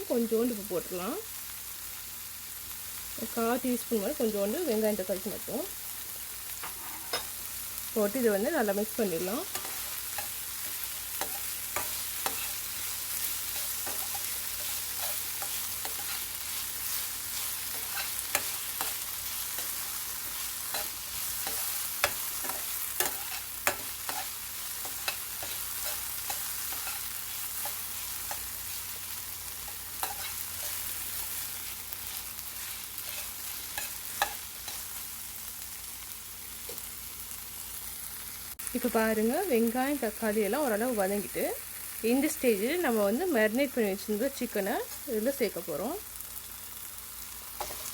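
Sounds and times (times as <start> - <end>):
vegetables sizzling in oil: 0.0 - 47.9
utensil scraping a pan: 6.6 - 7.3, 9.4 - 28.8, 29.7 - 30.9.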